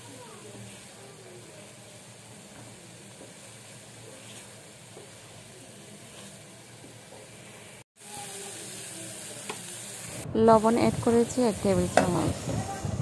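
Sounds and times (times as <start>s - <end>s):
fish sizzling in a pan: 0.0s - 13.0s
spatula scraping a pan: 4.2s - 5.2s, 6.0s - 6.5s.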